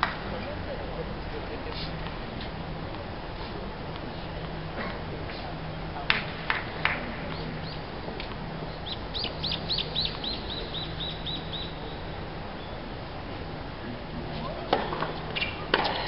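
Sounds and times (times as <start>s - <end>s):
bird chirping: 8.7s - 12.8s.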